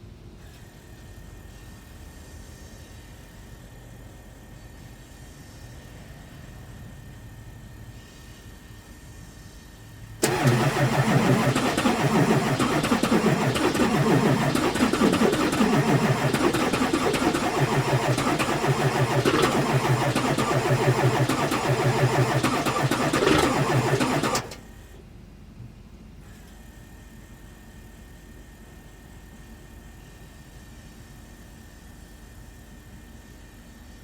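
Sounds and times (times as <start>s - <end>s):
diesel engine starting and running: 10.2s - 25.0s.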